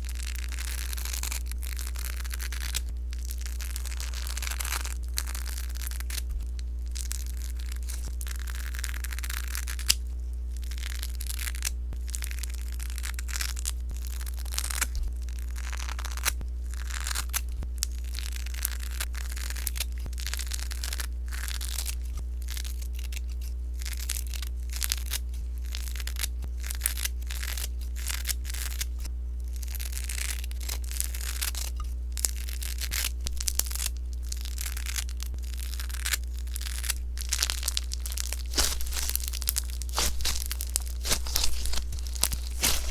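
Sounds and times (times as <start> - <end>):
slime crackling when squished: 32.2 - 42.9
steady low hum: 33.1 - 42.9.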